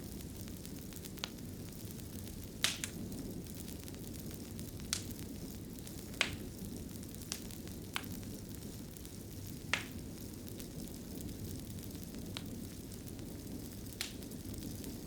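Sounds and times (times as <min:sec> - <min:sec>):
wood fire burning: 0:00.0 - 0:15.0.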